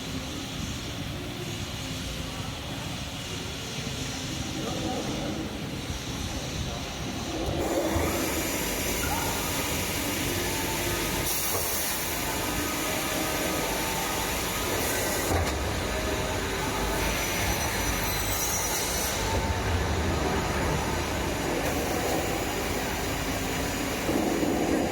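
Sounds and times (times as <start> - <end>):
panel saw machine noise: 7.4 - 24.9.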